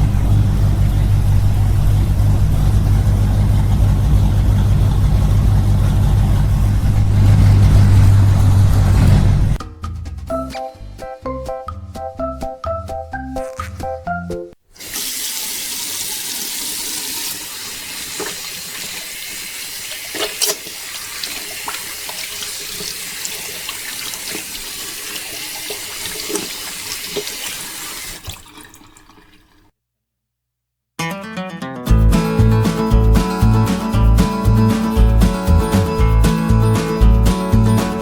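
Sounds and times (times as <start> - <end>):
running water: 14.7 - 29.7
small water splashes: 17.2 - 29.7.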